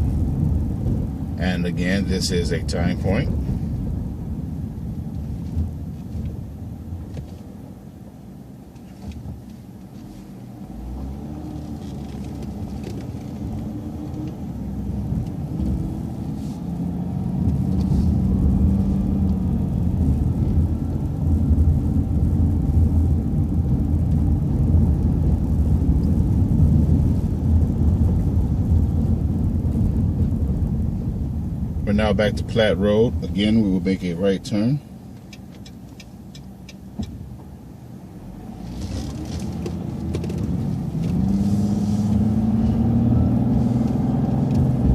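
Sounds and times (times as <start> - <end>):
bus engine revving: 10.5 - 29.7, 38.2 - 44.9.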